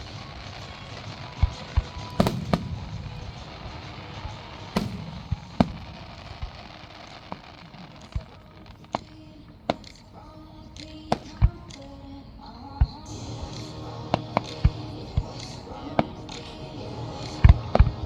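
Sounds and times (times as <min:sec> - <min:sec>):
fireworks booming: 0:00.0 - 0:10.3
fireworks crackling hiss: 0:00.0 - 0:18.0.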